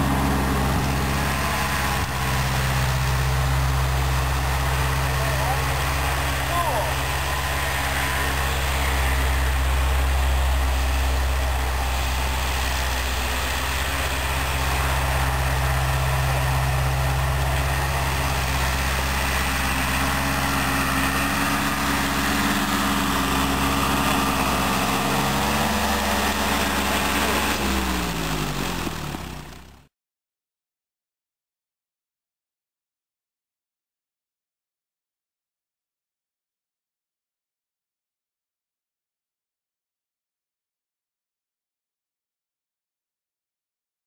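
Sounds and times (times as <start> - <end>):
tractor engine running: 0.0 - 29.9.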